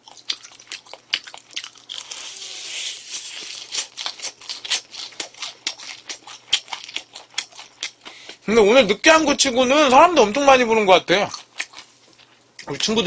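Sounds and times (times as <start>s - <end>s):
crunchy chewing of fried chicken: 0.0s - 8.5s, 11.2s - 13.0s.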